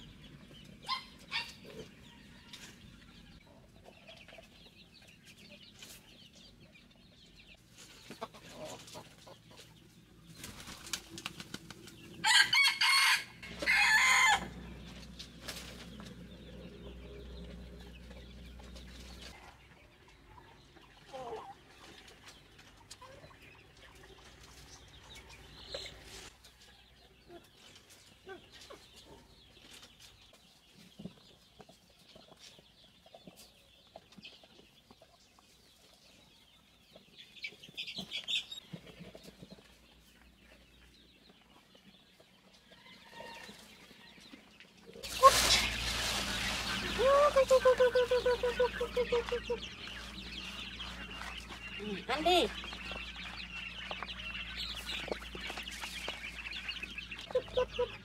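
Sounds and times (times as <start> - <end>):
chickens clucking: 0.0 - 58.0
wings flapping: 10.3 - 12.1, 45.0 - 49.6.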